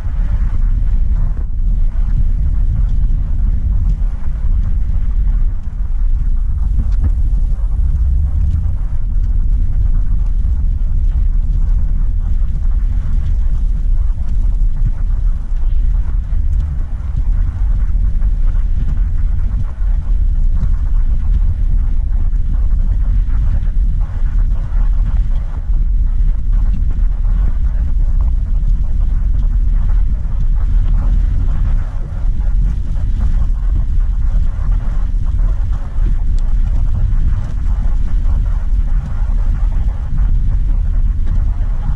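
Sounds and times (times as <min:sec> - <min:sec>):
car engine and road rumble: 0:03.6 - 0:12.1.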